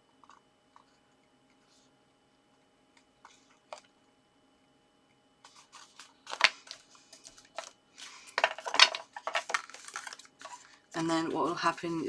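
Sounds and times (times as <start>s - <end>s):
paper rustles and taps: 5.5s - 7.8s, 8.4s - 11.1s.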